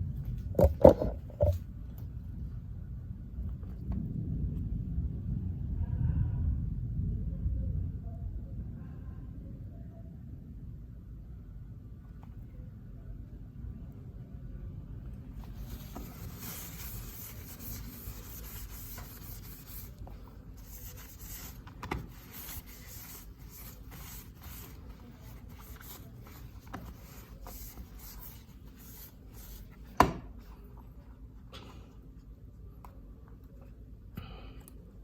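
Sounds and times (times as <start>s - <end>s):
rubbing and scraping handling noise: 0.2s - 1.7s, 15.3s - 32.5s.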